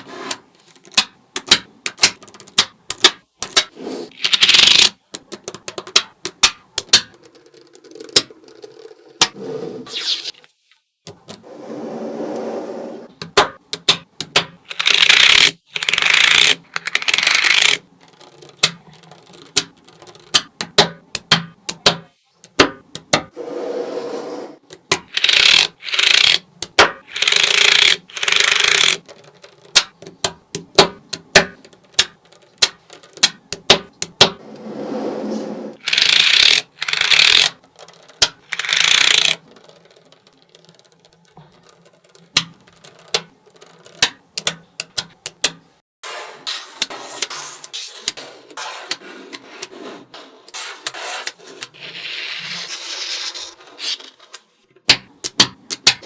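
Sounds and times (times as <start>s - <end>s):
balls rattling and rolling: 0.6s - 9.4s, 13.1s - 21.9s, 24.6s - 34.4s, 35.8s - 45.8s
magnetic balls clicking: 0.8s - 9.4s, 13.2s - 23.3s, 24.6s - 34.4s, 35.8s - 45.8s, 54.8s - 56.0s.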